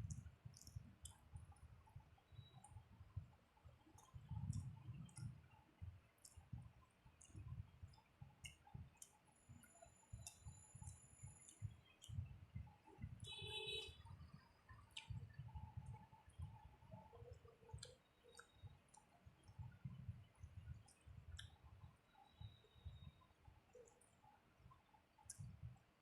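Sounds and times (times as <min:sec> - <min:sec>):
soft chewing: 0:00.0 - 0:13.3, 0:14.2 - 0:22.6, 0:23.2 - 0:26.0
wet mouth clicks: 0:20.9 - 0:21.6.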